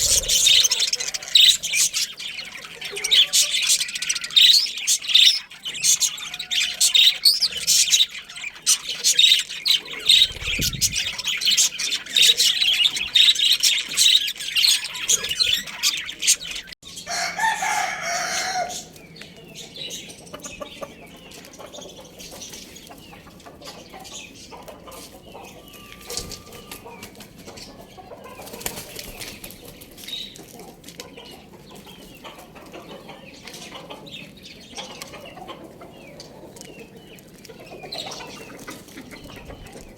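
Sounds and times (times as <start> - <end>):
domestic fowl calls: 0.0 - 10.4, 11.0 - 19.0, 22.8 - 29.0
birds chirping: 0.0 - 30.4, 31.0 - 39.9.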